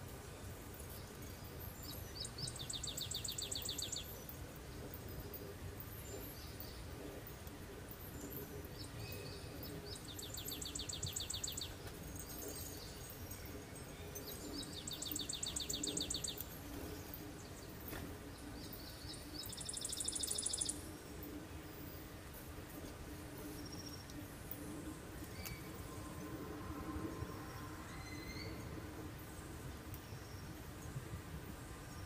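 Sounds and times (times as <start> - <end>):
low background noise: 0.0 - 32.0
songbird trilling: 2.1 - 4.1, 9.9 - 11.8, 14.6 - 16.5, 19.4 - 20.8.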